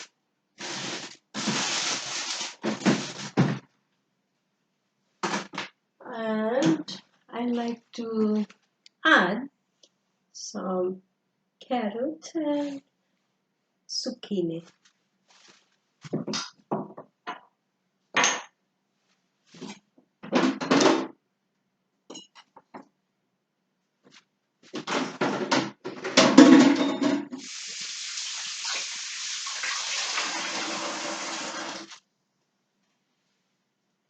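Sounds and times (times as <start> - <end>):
kitchen items clattering: 0.6 - 3.6, 24.8 - 27.4.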